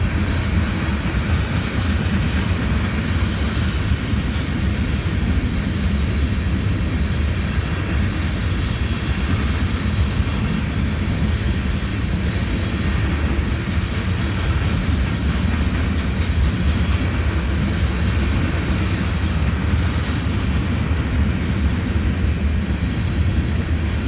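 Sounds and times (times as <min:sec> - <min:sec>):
train wheels rumbling on rail: 0:00.0 - 0:24.0
higher hiss: 0:12.2 - 0:13.9.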